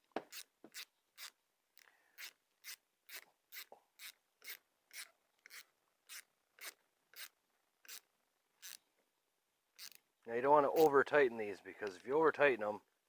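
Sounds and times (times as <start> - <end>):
ratchet wrench clicking: 2.2 - 7.3, 9.8 - 10.0.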